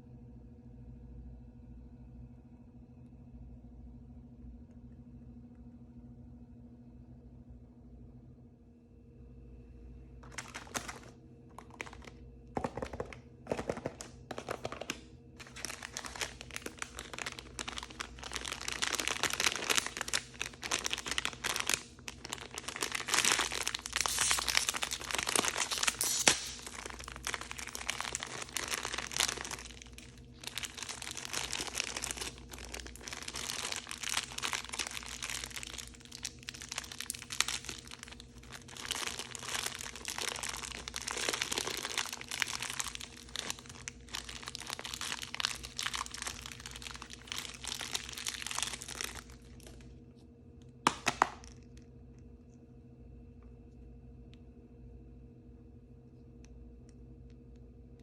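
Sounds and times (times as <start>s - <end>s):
faint steady hum: 0.0s - 58.0s
wrapper crinkling and tearing: 10.2s - 49.9s, 50.8s - 51.7s.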